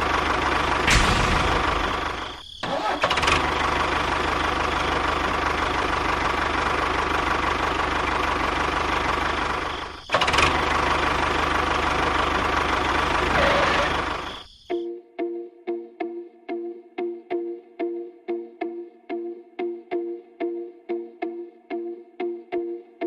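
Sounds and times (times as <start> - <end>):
small engine rattling: 0.0 - 14.4.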